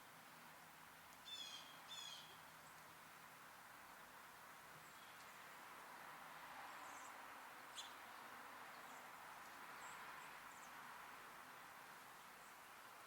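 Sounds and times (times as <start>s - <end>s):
small birds chirping: 1.2s - 3.0s, 6.8s - 10.8s.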